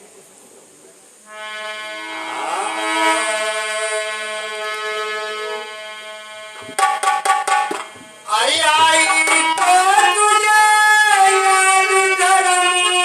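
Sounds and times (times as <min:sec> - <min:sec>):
harmonium playing: 0:01.3 - 0:13.0
tabla strokes: 0:04.4 - 0:11.1.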